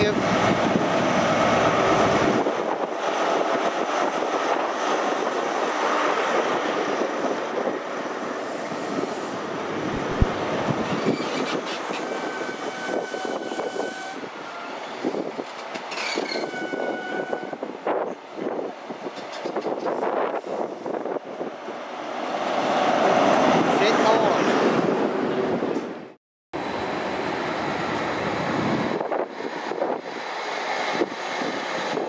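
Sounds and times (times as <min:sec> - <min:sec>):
diesel engine of a train: 0:00.0 - 0:24.2, 0:25.0 - 0:32.0
train coaches rumbling past: 0:00.0 - 0:32.0
high-pitched wheel squeals: 0:10.9 - 0:14.8, 0:15.9 - 0:17.5.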